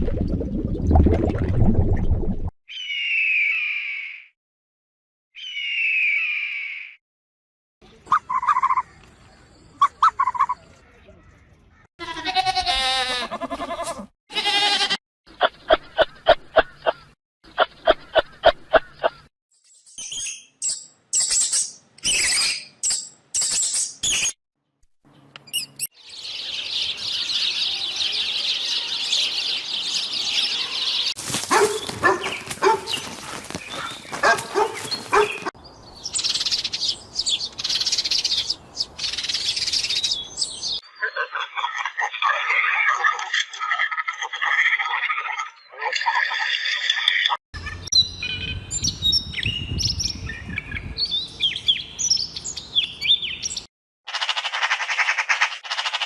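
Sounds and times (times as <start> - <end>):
dense high chirping chatter: 26.2 - 31.1.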